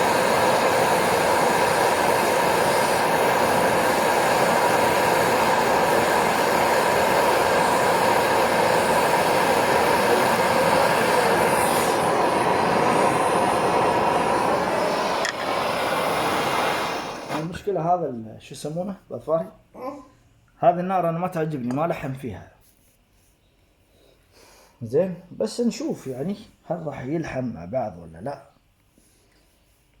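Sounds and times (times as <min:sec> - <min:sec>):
gas torch flame hissing: 0:00.0 - 0:17.8.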